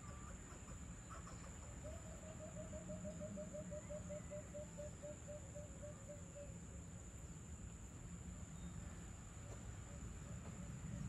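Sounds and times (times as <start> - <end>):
bird hooting: 1.1 - 6.6.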